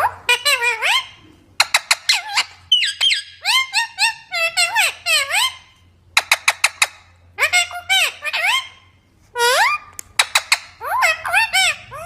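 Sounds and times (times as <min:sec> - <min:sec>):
parrot squeaky calls: 0:00.0 - 0:12.0
parrot clicking: 0:09.9 - 0:10.7.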